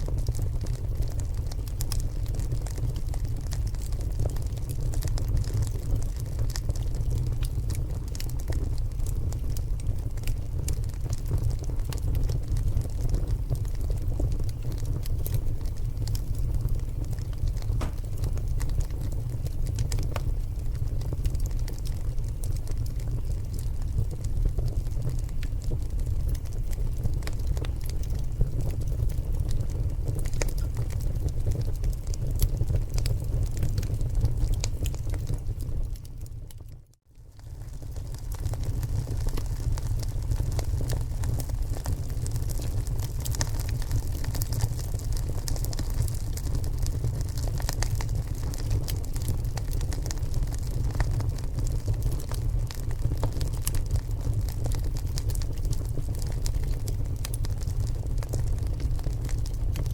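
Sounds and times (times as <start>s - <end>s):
fire crackling and popping: 0.0s - 59.9s
low fire rumble: 0.0s - 59.9s
steady low rumble: 16.1s - 18.9s.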